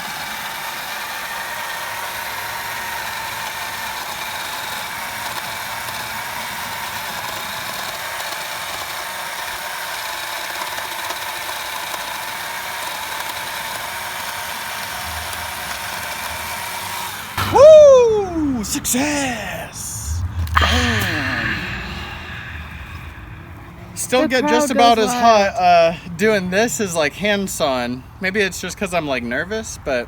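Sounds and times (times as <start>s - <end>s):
electric chainsaw cutting log: 0.0s - 17.4s.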